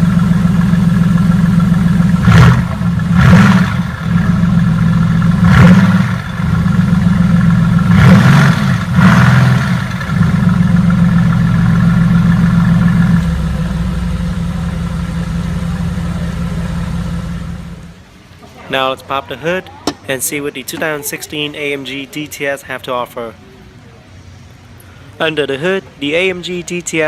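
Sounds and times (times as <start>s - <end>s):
car exhaust idling and revving: 0.0s - 18.1s.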